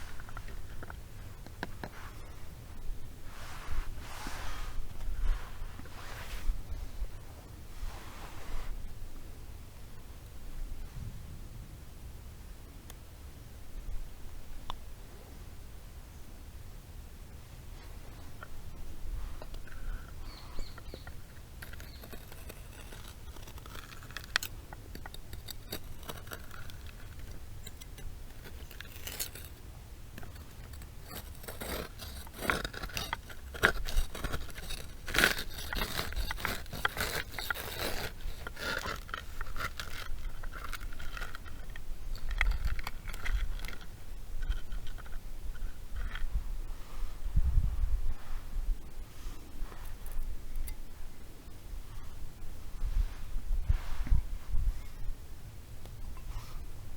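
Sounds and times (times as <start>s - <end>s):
knife scraping wood: 19.4s - 46.3s.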